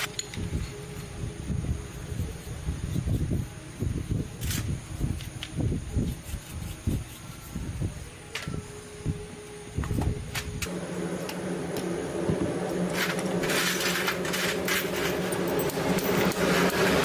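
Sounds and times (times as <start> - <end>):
motor running: 10.6 - 17.0.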